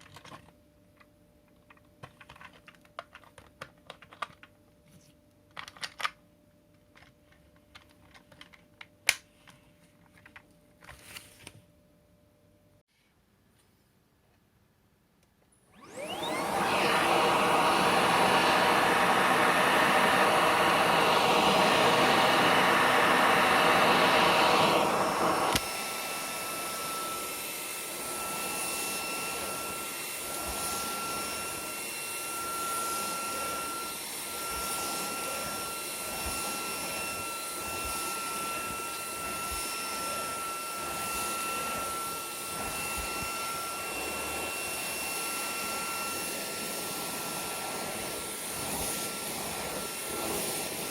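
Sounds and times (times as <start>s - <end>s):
stick vacuum running: 15.7s - 50.9s.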